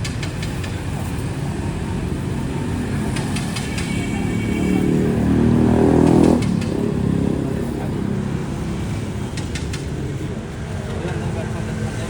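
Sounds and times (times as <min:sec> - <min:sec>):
road traffic rumbling: 0:00.0 - 0:12.0
vehicle engine accelerating: 0:00.8 - 0:11.0
sharp clicks: 0:06.0 - 0:06.8, 0:09.3 - 0:10.0.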